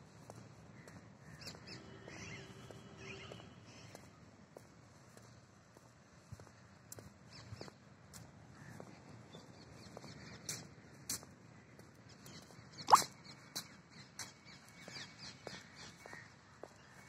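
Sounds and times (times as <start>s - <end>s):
birds chirping: 0.2s - 4.2s.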